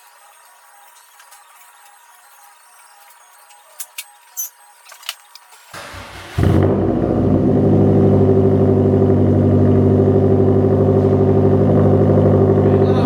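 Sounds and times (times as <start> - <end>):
car engine cranking and idling: 5.7 - 13.0.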